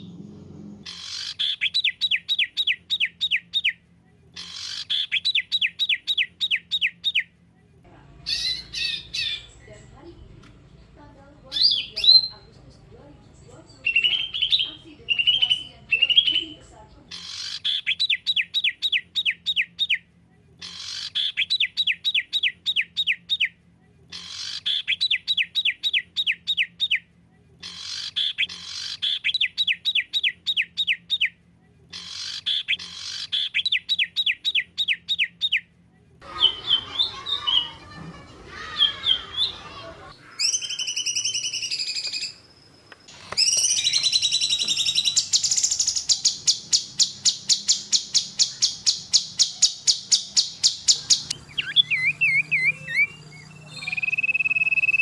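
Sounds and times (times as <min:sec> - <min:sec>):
songbird singing: 0:07.9 - 0:19.7, 0:36.2 - 0:42.5, 0:43.2 - 0:55.0
high fast bird trill: 0:08.2 - 0:10.0, 0:11.5 - 0:12.5, 0:13.6 - 0:17.7, 0:36.2 - 0:42.0, 0:43.4 - 0:55.0.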